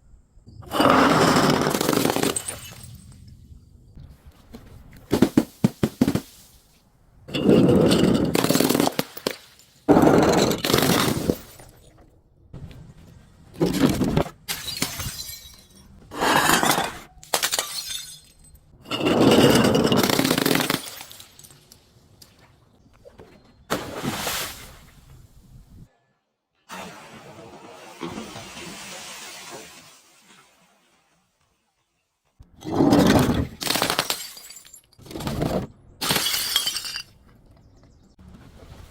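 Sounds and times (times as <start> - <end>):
glass breaking and crunching: 7.3 - 11.9, 14.5 - 21.7, 32.9 - 37.2.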